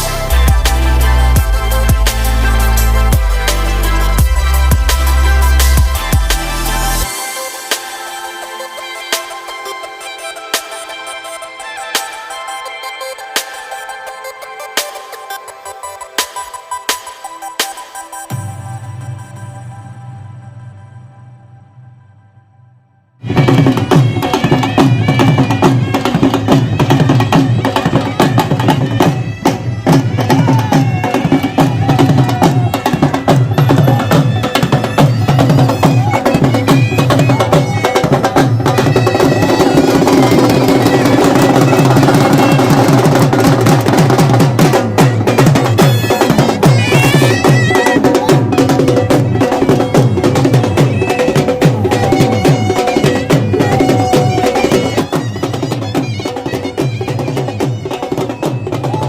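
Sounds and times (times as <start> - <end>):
fast drumming: 0.0 - 8.0, 23.2 - 59.0
bagpipe drone: 0.0 - 16.2, 18.1 - 59.0
reedy pipe melody: 0.0 - 59.0.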